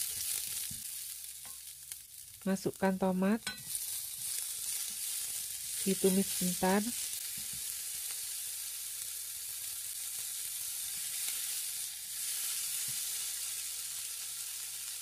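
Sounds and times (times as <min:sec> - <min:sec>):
vegetables sizzling in hot oil: 0:00.0 - 0:15.0
spatula stirring in wok: 0:03.4 - 0:08.3.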